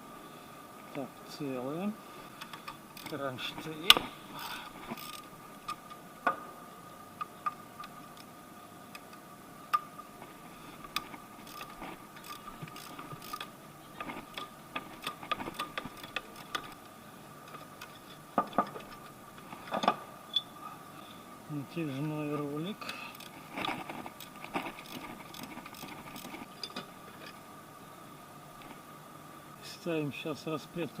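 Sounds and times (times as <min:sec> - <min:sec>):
ratchet ticking: 0:02.4 - 0:03.2, 0:03.9 - 0:05.3, 0:10.9 - 0:13.5, 0:23.1 - 0:26.4.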